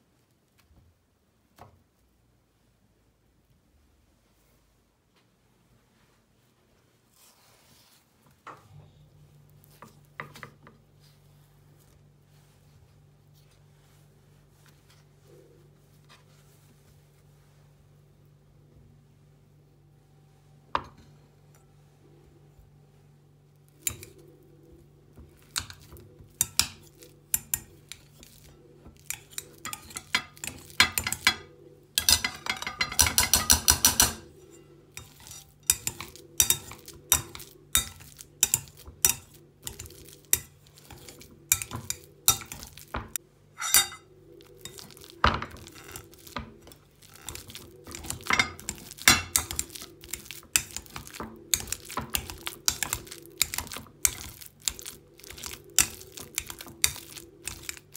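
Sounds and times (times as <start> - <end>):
utensils clinking against dishes: 25.5 - 46.4, 47.0 - 57.9.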